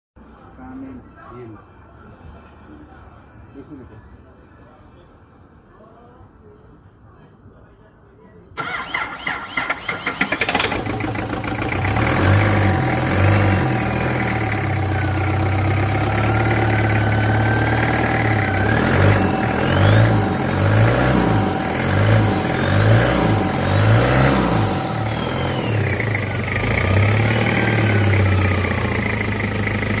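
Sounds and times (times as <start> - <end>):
diesel engine idling and revving: 8.6 - 30.0.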